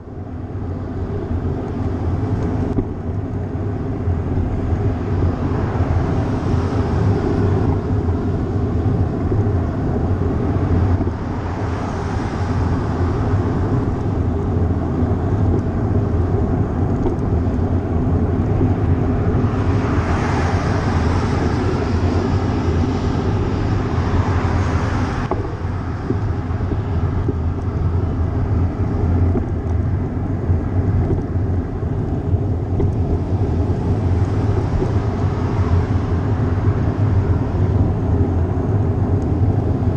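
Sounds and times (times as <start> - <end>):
wind and road rumble: 0.0 - 39.9
vehicle passing with hiss: 4.7 - 15.4, 18.7 - 29.2.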